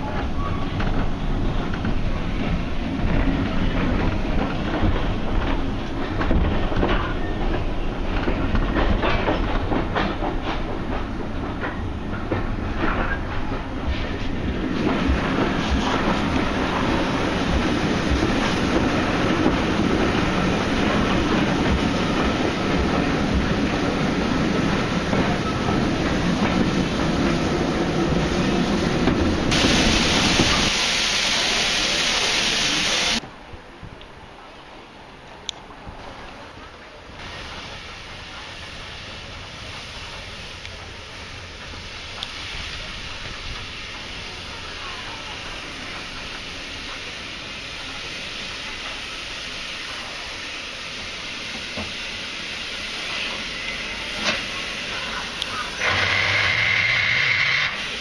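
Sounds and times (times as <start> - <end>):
wheels clicking over rail joints: 0.0 - 28.2
train rumble: 0.0 - 58.0
loud hiss: 26.2 - 33.2, 37.2 - 58.0.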